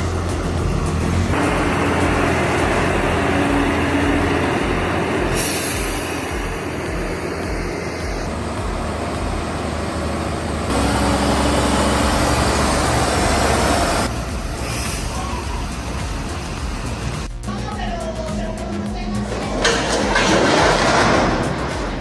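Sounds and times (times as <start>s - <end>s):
heavy vehicle rough rumble: 0.0s - 17.4s
road noise: 0.0s - 17.7s.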